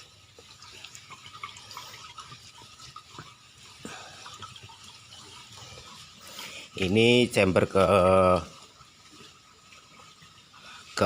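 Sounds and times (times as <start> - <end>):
water drips: 0.0 - 11.0
water trickling and bubbling: 0.0 - 11.0.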